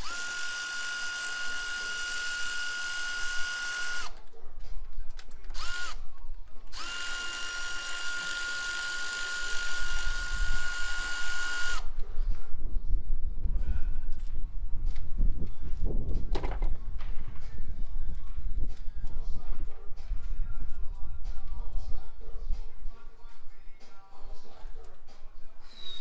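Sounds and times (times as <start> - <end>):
cordless power tool motor whining: 0.0 - 4.2, 5.5 - 6.0, 6.7 - 12.0.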